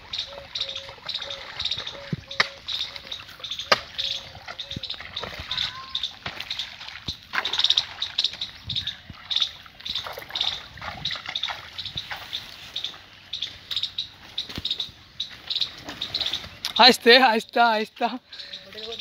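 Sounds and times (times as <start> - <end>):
faint water trickle: 0.0 - 13.8
small birds chirping: 0.0 - 19.0.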